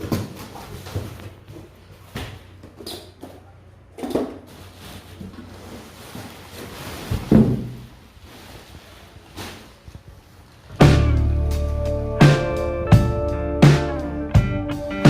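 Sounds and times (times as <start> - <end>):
hard objects knocking and thumping: 7.1 - 7.9.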